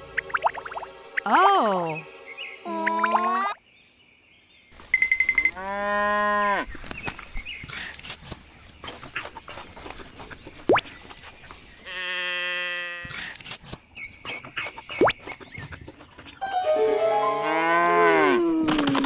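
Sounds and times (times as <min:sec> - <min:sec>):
cow mooing: 0:05.4 - 0:06.7, 0:17.4 - 0:18.5
scattered clicks and rustling: 0:06.7 - 0:11.8.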